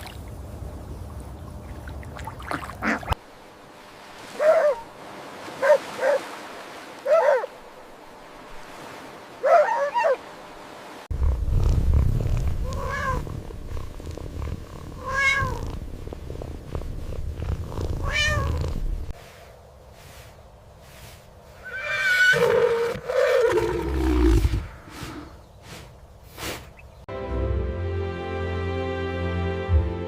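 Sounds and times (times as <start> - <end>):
steady low rumble: 11.1 - 19.2
cat meowing: 12.6 - 13.2, 15.0 - 15.6, 18.0 - 18.6.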